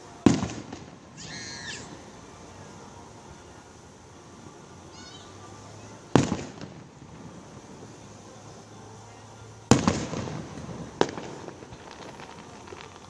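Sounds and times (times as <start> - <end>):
fireworks booming: 0.0 - 13.0.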